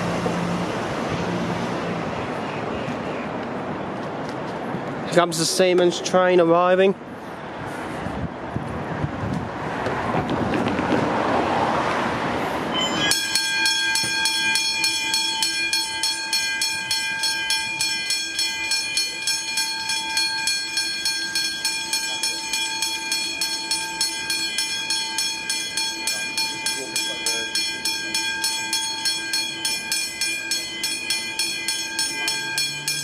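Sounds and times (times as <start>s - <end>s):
electric train rushing past: 0.0s - 2.6s, 7.8s - 33.0s
level crossing bells ringing: 12.7s - 33.0s.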